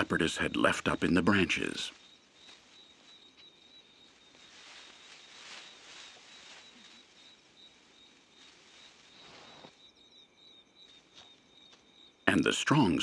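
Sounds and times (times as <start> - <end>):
soft rustling hiss: 1.9 - 9.8.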